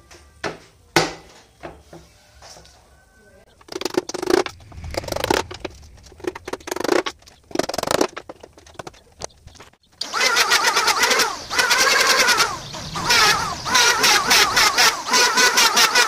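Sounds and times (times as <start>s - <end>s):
wavering whine: 3.5s - 10.2s, 11.0s - 15.7s
scraping and rubbing: 3.6s - 9.8s.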